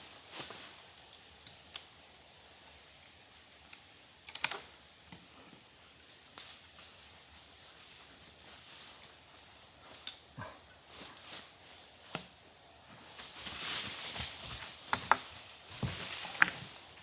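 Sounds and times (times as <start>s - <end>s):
sharp clicks and snaps: 1.0s - 2.0s, 2.6s - 5.2s.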